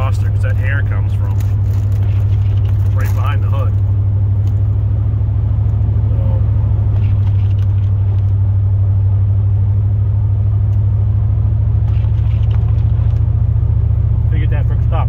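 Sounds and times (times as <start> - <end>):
man talking: 0.0 - 1.4, 2.9 - 3.8, 14.3 - 15.0
truck engine droning: 0.0 - 15.0.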